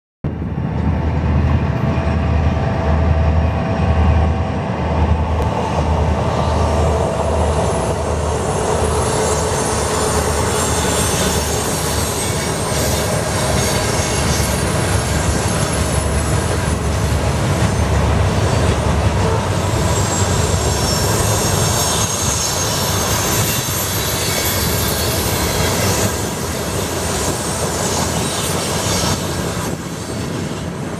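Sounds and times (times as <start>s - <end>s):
diesel locomotive throb: 0.3s - 30.9s
train wheels clattering on rails: 5.1s - 30.9s
wheel squeal: 7.8s - 16.8s, 19.3s - 30.6s.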